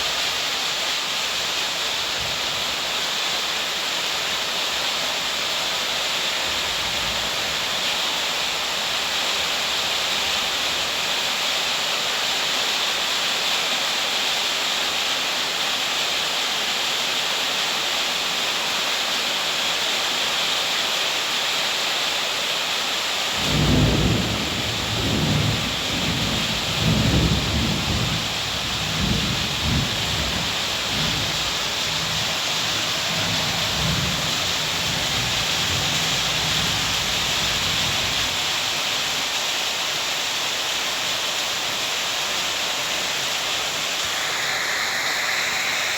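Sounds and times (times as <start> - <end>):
heavy rain hissing: 0.0 - 45.9
thunder rumbling: 23.4 - 38.4.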